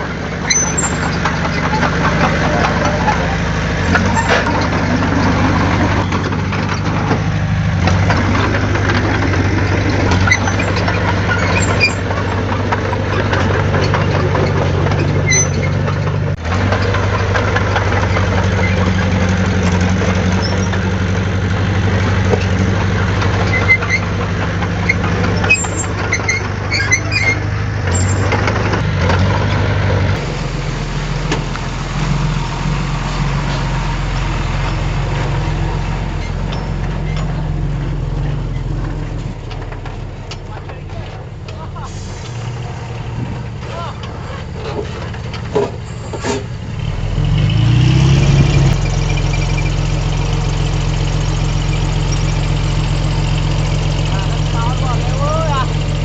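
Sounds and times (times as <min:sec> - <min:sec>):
heavy diesel machinery running: 0:00.0 - 0:56.0
sharp metallic clanks: 0:00.4 - 0:30.5.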